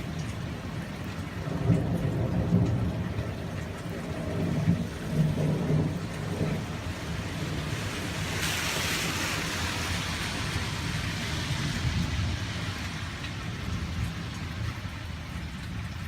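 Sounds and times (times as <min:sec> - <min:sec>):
steady rain: 0:00.0 - 0:16.0
rush of hiss: 0:07.9 - 0:11.9.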